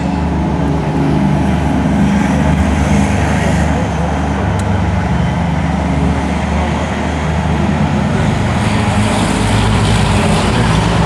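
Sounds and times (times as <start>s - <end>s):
vehicle engines droning: 0.0s - 11.0s.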